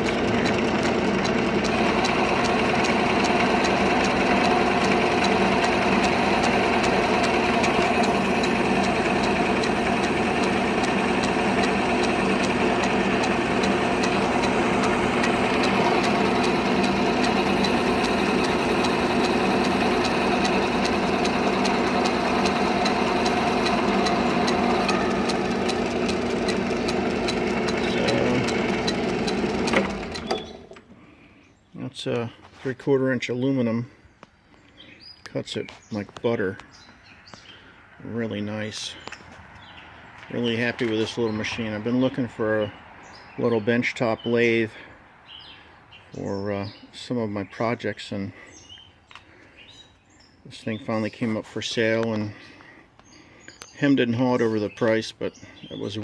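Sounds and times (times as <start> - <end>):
lathe running: 0.0 - 30.8
drive belt clicking: 0.0 - 30.9.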